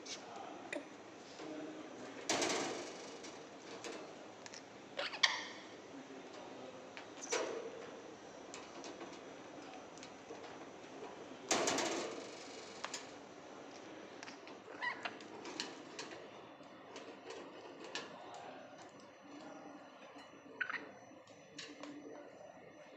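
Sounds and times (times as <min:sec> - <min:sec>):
bird squeaks: 0:14.7 - 0:15.1.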